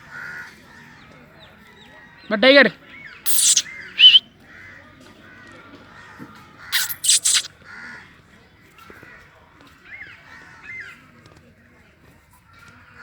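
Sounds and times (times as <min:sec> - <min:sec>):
faint bird chirps: 0:03.3 - 0:04.2, 0:06.8 - 0:07.5.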